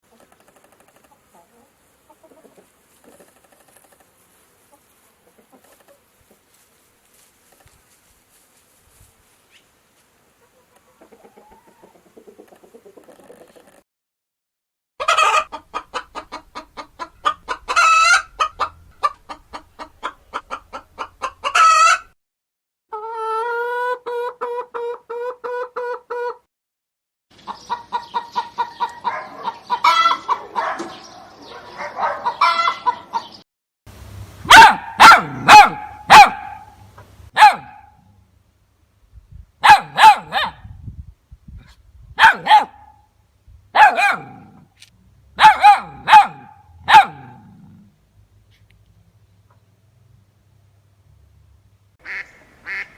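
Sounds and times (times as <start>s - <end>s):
chickens clucking and cackling: 0.1s - 6.6s, 10.3s - 13.8s, 15.0s - 22.2s, 22.9s - 26.5s, 27.3s - 33.4s
loud chicken squawks: 15.0s - 19.2s, 20.0s - 22.2s, 27.7s - 30.9s, 32.0s - 33.4s, 34.5s - 36.8s, 52.0s - 52.9s.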